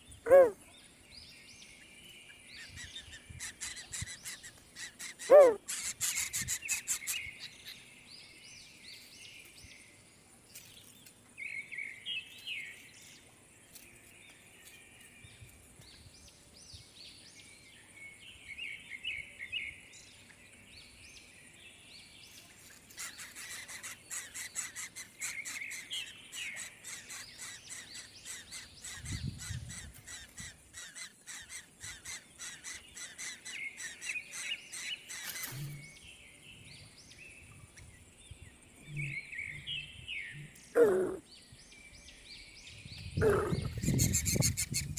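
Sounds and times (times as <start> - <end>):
birds chirping: 0.0 - 9.8, 22.0 - 44.9
falling bird call: 40.8 - 41.2.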